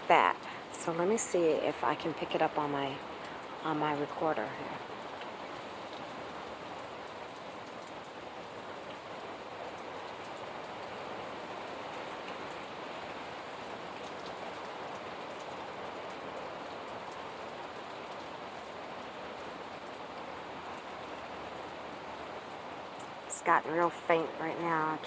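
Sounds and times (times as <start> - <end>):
hiss of heavy rain and wind: 0.0 - 25.0.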